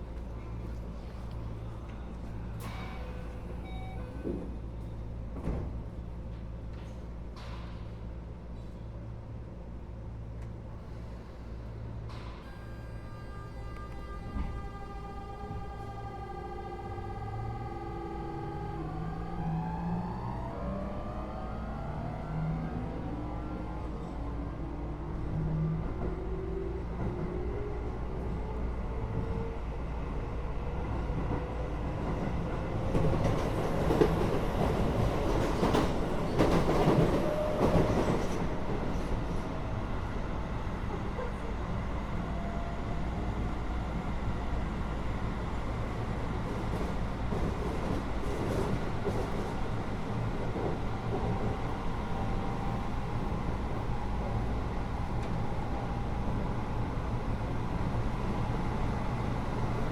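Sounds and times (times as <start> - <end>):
train clattering and rattling: 0.0 - 9.1, 30.4 - 42.1, 44.4 - 59.9.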